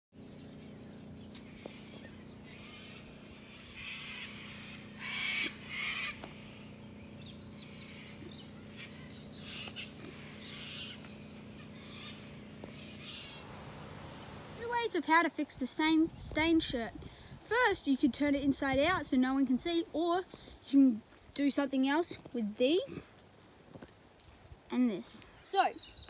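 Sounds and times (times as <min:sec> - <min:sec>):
birds calling: 0:00.2 - 0:15.0, 0:24.2 - 0:26.0
steady low hum: 0:00.2 - 0:19.7.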